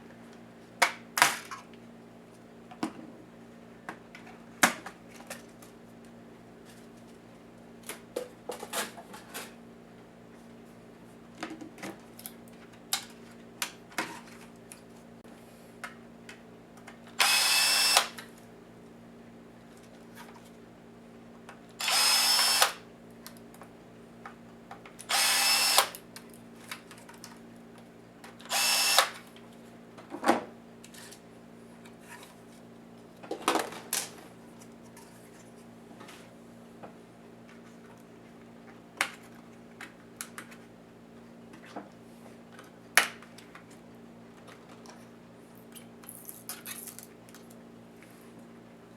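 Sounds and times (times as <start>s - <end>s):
power screwdriver whirring: 17.2s - 18.2s, 21.8s - 22.8s, 25.1s - 26.0s, 28.5s - 29.2s.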